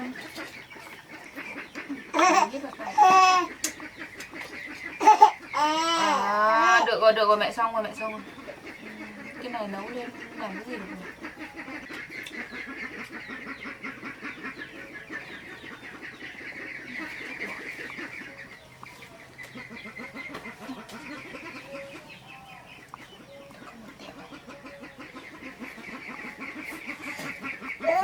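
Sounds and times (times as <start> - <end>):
chickens clucking: 0.0 - 28.0
fast chirping chatter: 0.0 - 28.0.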